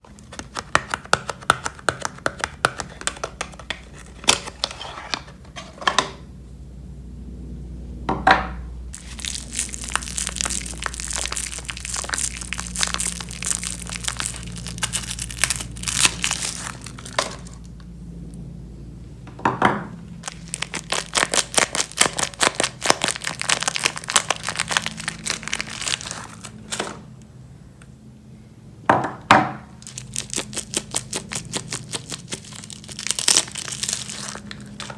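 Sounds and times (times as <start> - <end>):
wrappers crinkling and tearing: 9.0 - 17.8, 20.2 - 27.0, 29.8 - 34.9.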